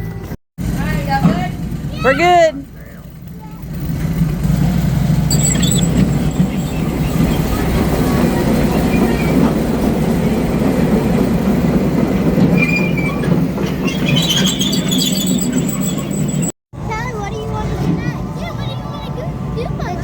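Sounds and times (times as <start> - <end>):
ride cars rumbling on track: 0.1 - 20.0
wheels squeaking: 2.6 - 16.6.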